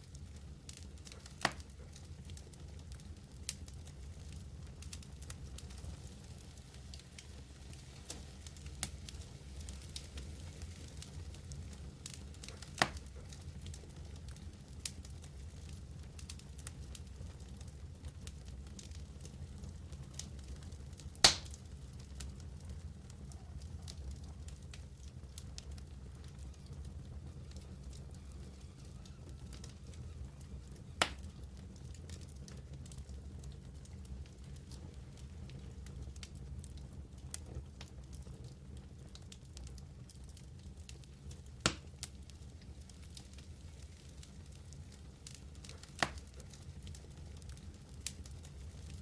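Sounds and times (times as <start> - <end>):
low rumble of flames: 0.0 - 49.0
wood fire crackling: 0.0 - 49.0
loud sharp pop: 21.2 - 21.6.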